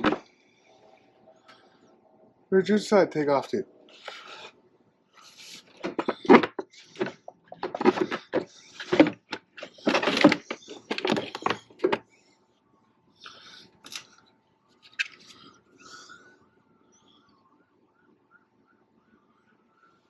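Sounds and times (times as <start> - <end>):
tools clunking and scraping: 5.4 - 12.1.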